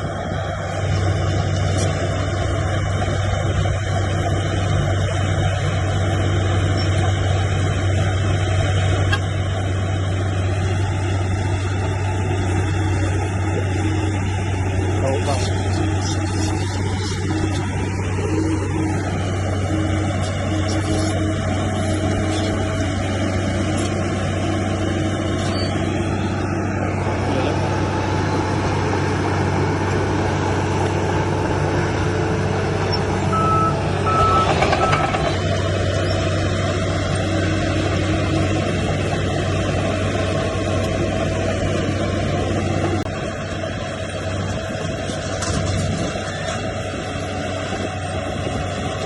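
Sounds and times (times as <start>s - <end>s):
diesel machinery droning: 0.0s - 49.0s
reversing alarm beeps: 33.3s - 35.2s.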